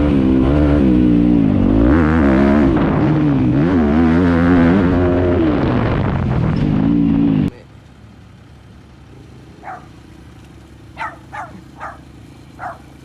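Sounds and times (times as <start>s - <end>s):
dirt bike engine running: 6.1s - 13.0s
dog barking short yaps: 9.6s - 10.0s, 11.0s - 12.0s, 12.6s - 12.9s.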